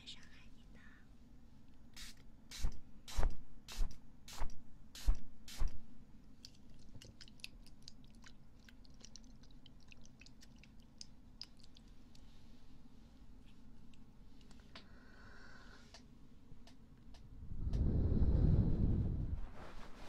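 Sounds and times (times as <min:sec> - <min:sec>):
ear scraping strokes: 0:17.6 - 0:20.0.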